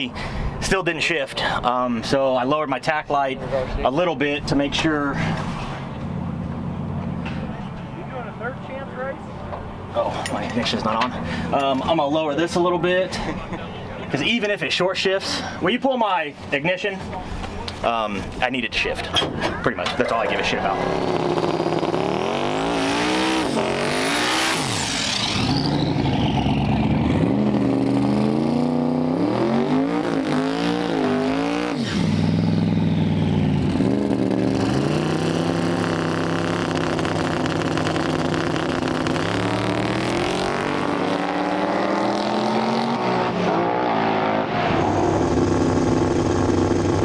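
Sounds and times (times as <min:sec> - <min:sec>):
drag car engine revving: 0:19.2 - 0:47.0.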